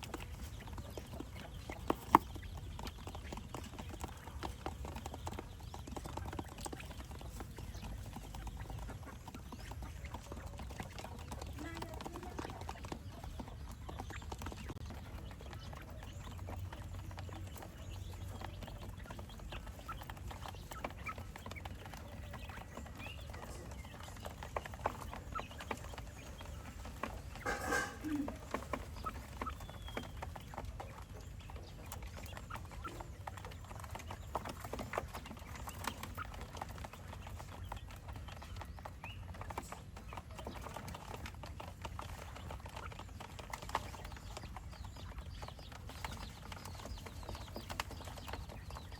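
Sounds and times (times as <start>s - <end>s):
quail calling: 15.4s - 33.7s.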